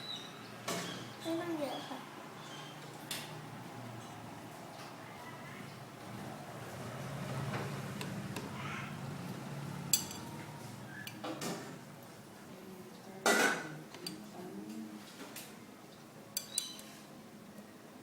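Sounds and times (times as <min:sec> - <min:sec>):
utensils clinking against dishes: 0:09.9 - 0:10.5, 0:16.4 - 0:17.0.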